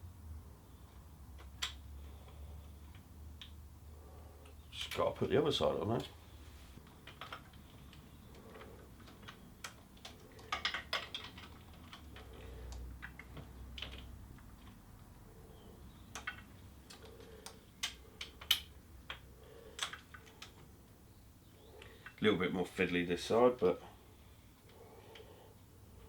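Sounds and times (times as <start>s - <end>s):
washers and nuts clicking: 6.9s - 14.8s.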